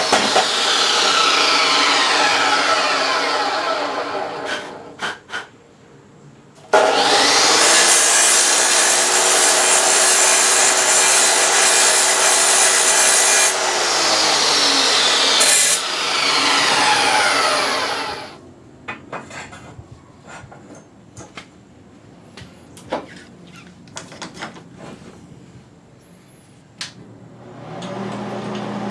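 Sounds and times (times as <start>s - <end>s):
power saw cutting wood: 0.0s - 5.0s, 6.7s - 18.4s.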